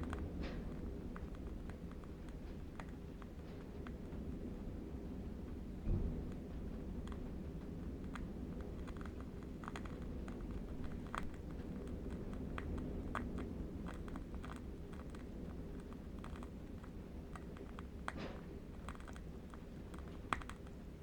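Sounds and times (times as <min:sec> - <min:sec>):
low wind rumble: 0:00.0 - 0:21.0
candle wick crackling: 0:10.4 - 0:13.3.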